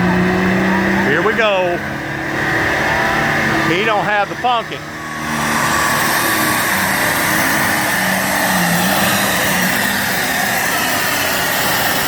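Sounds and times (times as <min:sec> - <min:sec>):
tractor engine at full throttle: 0:00.0 - 0:12.0.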